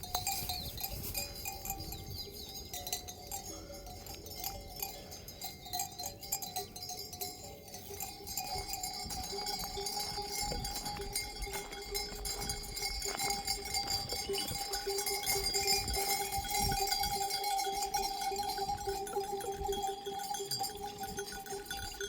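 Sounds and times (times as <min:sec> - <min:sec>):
livestock bells clinking: 0:00.0 - 0:22.0.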